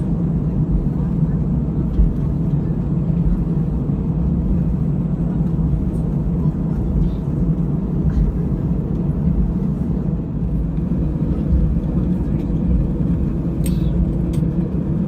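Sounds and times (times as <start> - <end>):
aircraft cabin low rumble: 0.0 - 15.0.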